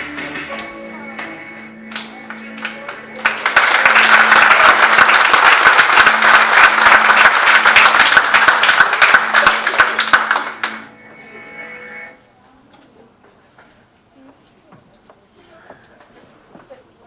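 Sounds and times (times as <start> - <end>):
congregation clapping: 1.2 - 10.9.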